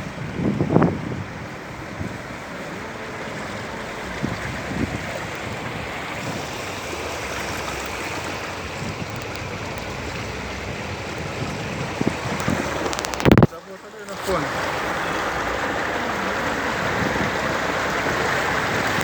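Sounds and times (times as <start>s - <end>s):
wind thumps on microphone: 0.0s - 2.6s, 4.0s - 13.6s
floodwater rushing: 0.0s - 19.0s.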